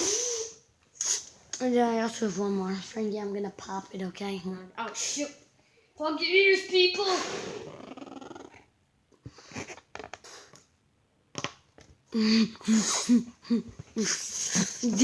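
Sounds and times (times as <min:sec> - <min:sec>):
rubber balloon squeaking: 0:07.0 - 0:08.6, 0:09.4 - 0:10.6.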